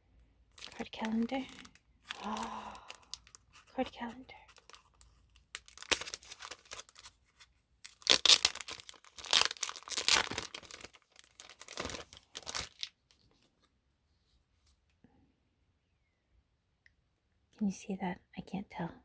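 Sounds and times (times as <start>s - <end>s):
packaging tearing and crinkling: 0.6s - 3.8s, 4.5s - 7.2s, 7.8s - 13.0s.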